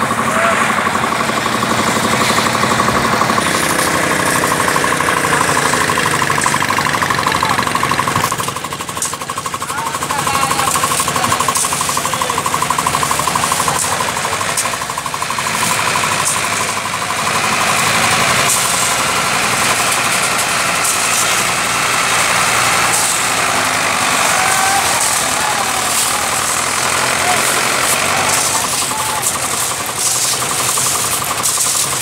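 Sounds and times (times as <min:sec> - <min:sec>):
tractor diesel engine chugging: 0:00.0 - 0:32.0.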